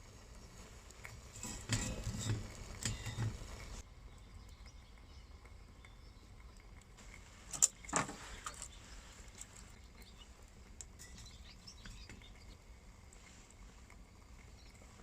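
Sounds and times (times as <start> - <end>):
sharp cracks of fire: 0.0 - 3.8
small wood fire crackling: 0.0 - 15.0.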